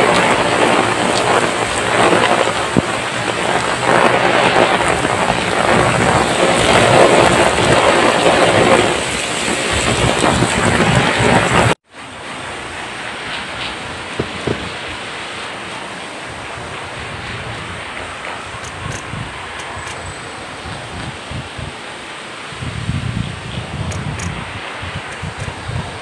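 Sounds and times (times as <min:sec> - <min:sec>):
heavy rain on paved ground: 0:00.0 - 0:26.0.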